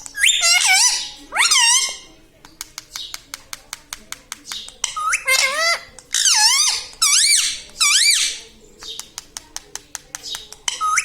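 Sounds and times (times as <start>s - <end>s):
parrot calling: 0.2s - 2.1s, 4.8s - 8.4s, 10.7s - 11.0s
parrot clicks: 2.4s - 8.1s, 8.8s - 11.0s.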